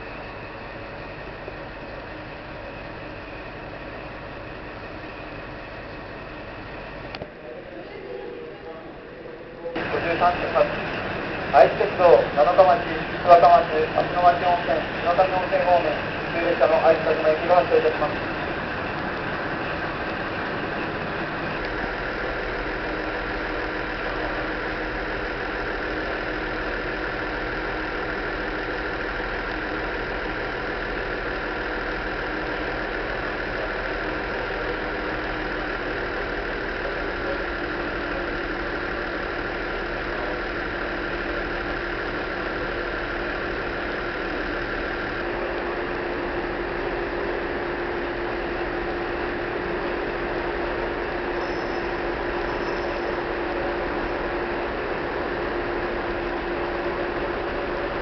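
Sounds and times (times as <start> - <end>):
train mechanical hum: 0.0 - 58.0.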